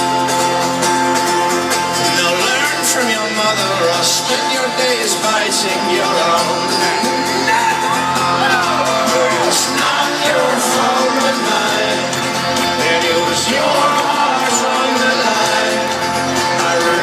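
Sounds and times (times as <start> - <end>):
live rock band playing: 0.0 - 17.0
crowd singing along: 1.3 - 17.0
crowd shouting and whooping: 6.2 - 17.0.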